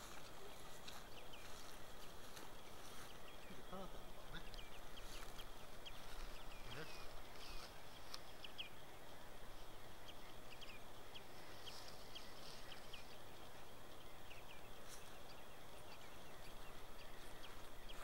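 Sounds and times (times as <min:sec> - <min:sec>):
birds calling: 0:00.0 - 0:18.0.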